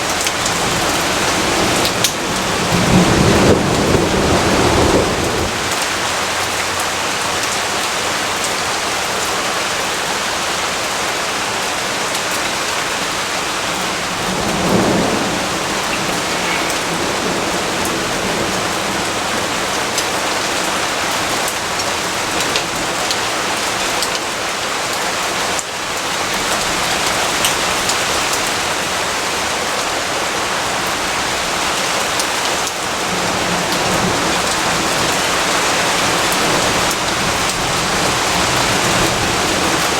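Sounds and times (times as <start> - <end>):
heavy rain hissing: 0.0 - 39.9
thunder rumble: 0.2 - 6.5, 13.2 - 20.5.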